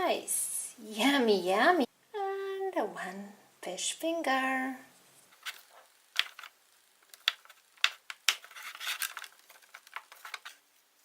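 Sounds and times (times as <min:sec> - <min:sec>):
soft rustling: 0:04.9 - 0:11.0
plastic toy dishes clicking: 0:06.2 - 0:10.6.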